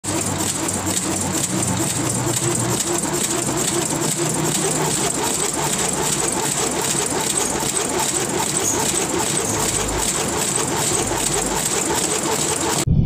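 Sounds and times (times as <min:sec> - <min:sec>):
small motor rattling: 0:00.0 - 0:12.9.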